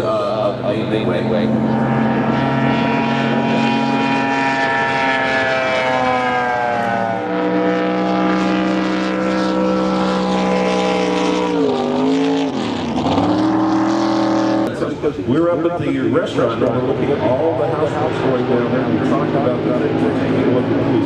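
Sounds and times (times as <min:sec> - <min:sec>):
large engine running: 0:16.6 - 0:21.0.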